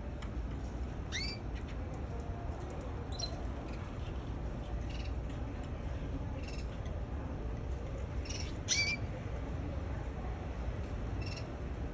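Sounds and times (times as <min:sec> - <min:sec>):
low background hum: 0:00.0 - 0:11.9
canary chirping: 0:01.1 - 0:01.8, 0:03.1 - 0:03.8, 0:08.2 - 0:09.1, 0:11.2 - 0:11.5.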